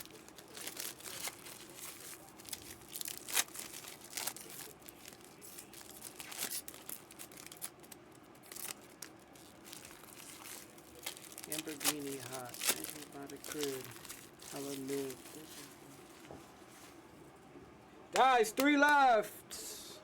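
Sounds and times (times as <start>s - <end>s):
cards rustling and clicking: 0.0s - 15.8s
wrappers crinkling and tearing: 0.0s - 17.0s.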